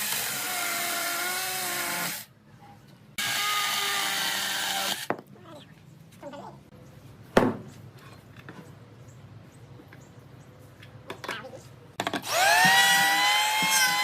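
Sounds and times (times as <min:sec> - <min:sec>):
power drill whining: 0:12.2 - 0:14.0.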